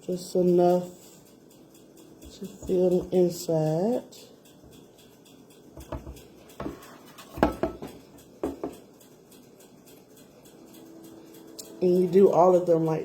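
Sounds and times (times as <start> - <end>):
utensil clinking against a dish: 2.2 - 4.3, 5.8 - 8.9.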